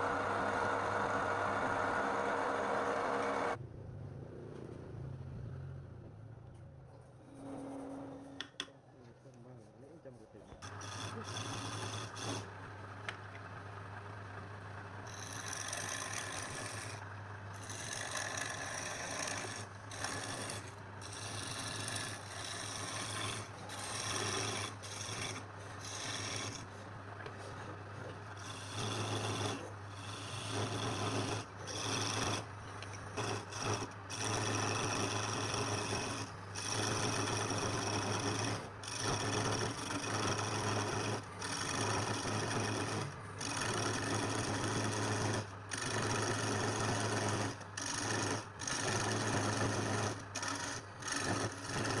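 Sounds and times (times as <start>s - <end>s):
power sander rasping on wood: 10.6s - 12.5s, 15.1s - 52.0s.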